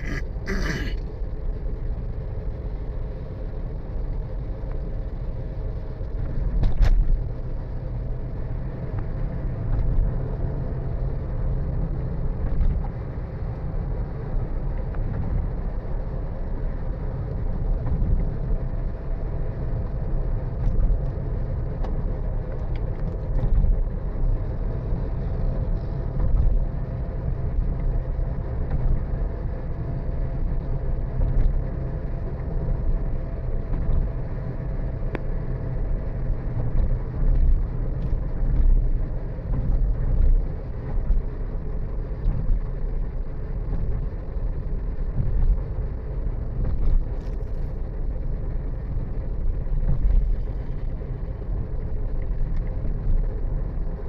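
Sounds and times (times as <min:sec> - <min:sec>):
faint constant hum: 0:00.0 - 0:54.0
vehicle driving on road: 0:00.0 - 0:54.0.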